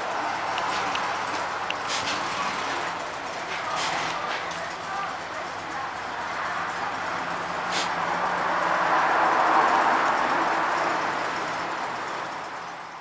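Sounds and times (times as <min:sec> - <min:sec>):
vehicle rushing noise: 0:07.3 - 0:10.2.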